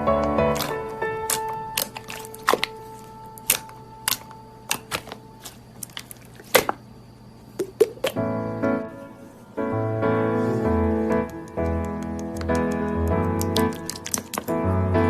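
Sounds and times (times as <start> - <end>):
slime wet pops and clicks: 11.2 - 14.5.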